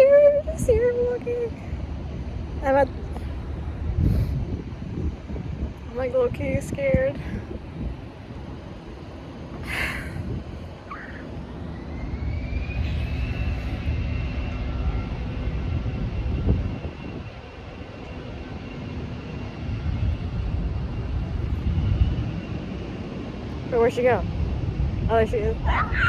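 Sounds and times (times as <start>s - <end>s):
high whine: 9.6s - 18.1s.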